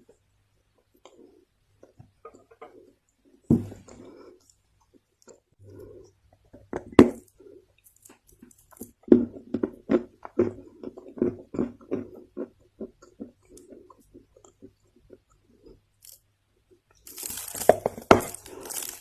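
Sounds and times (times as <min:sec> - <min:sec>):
soil crunching: 0:17.1 - 0:19.0.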